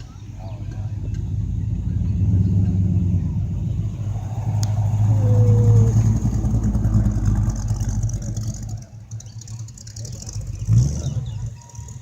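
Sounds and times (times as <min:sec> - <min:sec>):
car engine rumbling past: 0:00.0 - 0:12.0.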